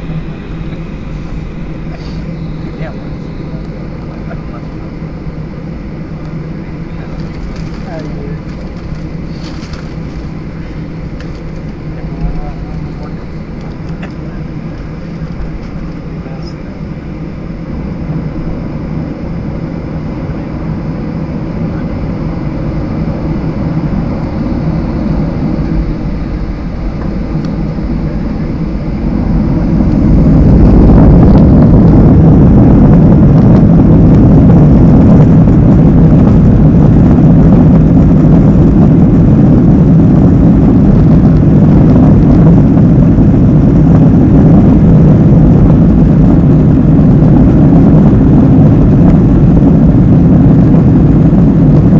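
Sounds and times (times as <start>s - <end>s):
jet engines spooling up: 0.0s - 51.9s.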